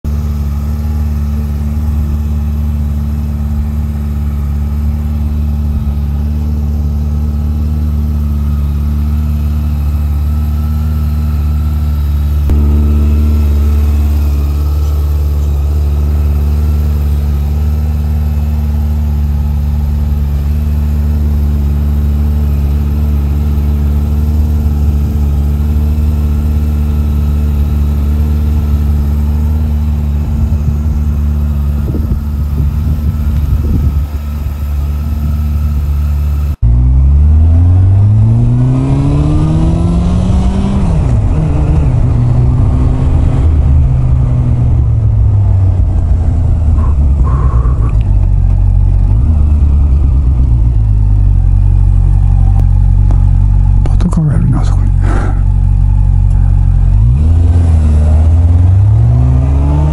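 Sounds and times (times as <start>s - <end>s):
motorcycle engine idling: 0.0s - 36.7s, 43.7s - 54.0s, 54.8s - 57.0s.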